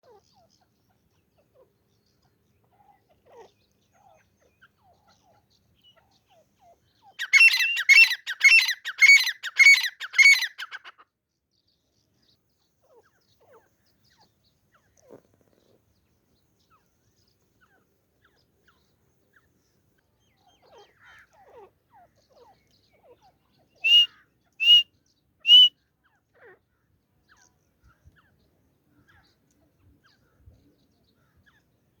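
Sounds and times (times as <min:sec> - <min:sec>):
gamebird harsh calls: 0:07.2 - 0:10.8, 0:23.8 - 0:24.8, 0:25.5 - 0:25.7.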